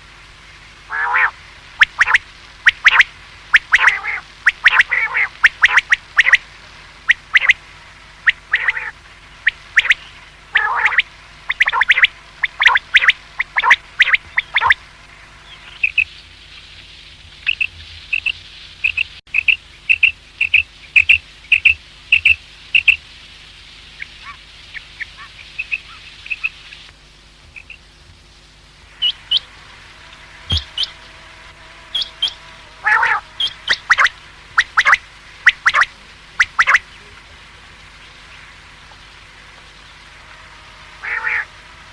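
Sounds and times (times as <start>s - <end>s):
quail calling: 0.9s - 7.6s, 8.2s - 14.8s, 30.1s - 31.1s, 31.9s - 36.8s, 41.0s - 41.5s.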